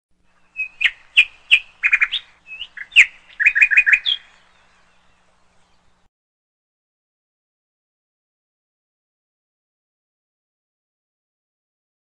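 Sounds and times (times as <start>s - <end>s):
small birds chirping: 0.2s - 6.1s.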